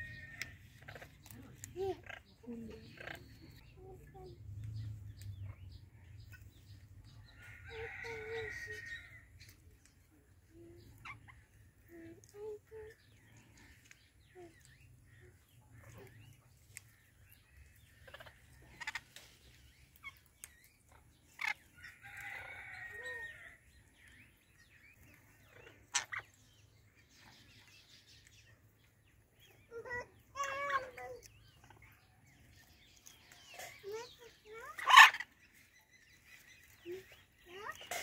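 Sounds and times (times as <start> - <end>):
bird chirps and squawks: 25.4 - 27.4, 33.0 - 35.7.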